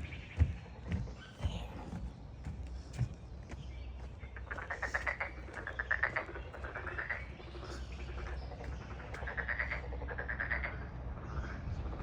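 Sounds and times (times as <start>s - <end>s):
frogs calling with clicking pulses: 4.4s - 10.9s.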